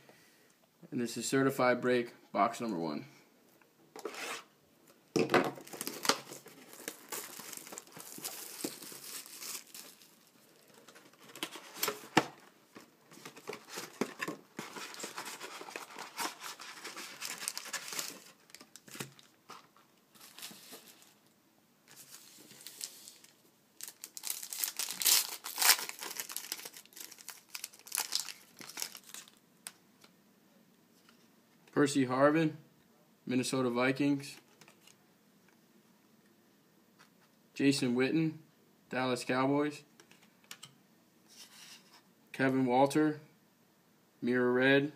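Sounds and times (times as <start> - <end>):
packaging tearing and crinkling: 5.6 - 12.2, 13.3 - 19.4, 21.9 - 29.4.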